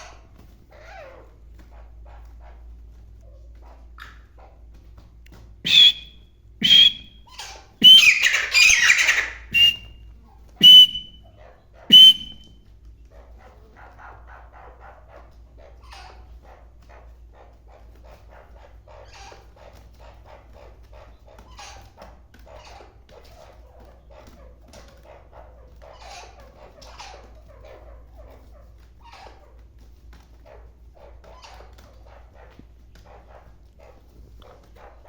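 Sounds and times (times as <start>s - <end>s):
bird calling harshly: 5.7s - 9.9s, 10.6s - 11.2s, 11.9s - 12.5s
faint chirping: 5.7s - 10.0s, 10.6s - 11.2s, 11.9s - 12.5s.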